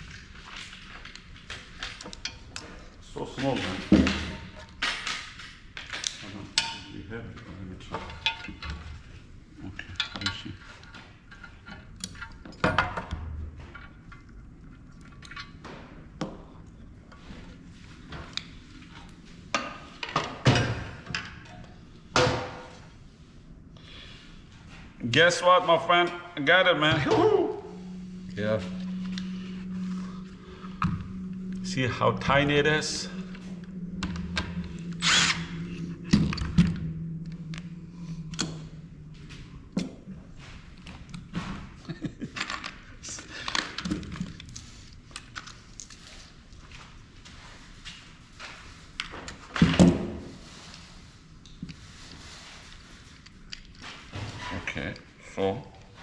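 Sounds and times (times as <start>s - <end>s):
power tool motor humming: 35.0s - 35.6s.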